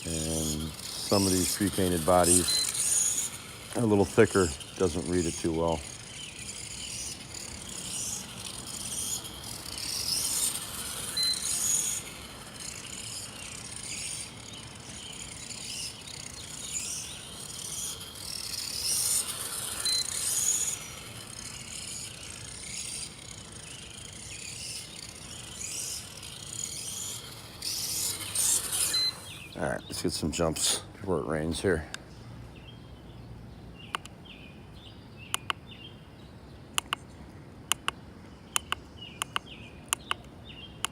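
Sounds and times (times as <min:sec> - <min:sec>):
electric motor whirring: 0:00.0 - 0:30.9.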